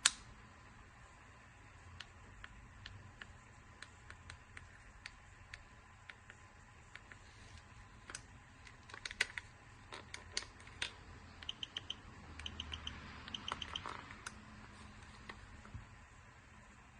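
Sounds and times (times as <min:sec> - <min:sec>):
small plastic clicks and snaps: 0:00.0 - 0:00.2, 0:08.0 - 0:11.6
short high beeps: 0:11.5 - 0:13.8.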